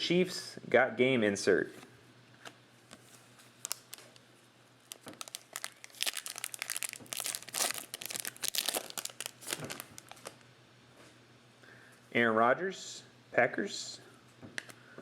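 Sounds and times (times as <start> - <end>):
wrapper tearing and crinkling: 3.1 - 4.2, 4.8 - 10.4.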